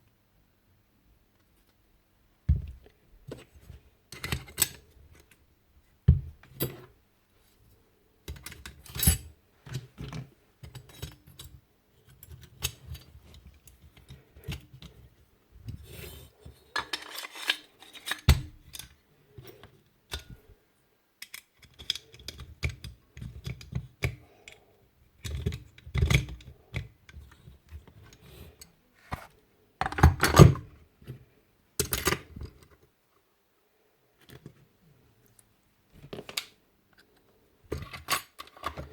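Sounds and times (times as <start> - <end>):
metal parts clicking and clattering: 16.8 - 19.0.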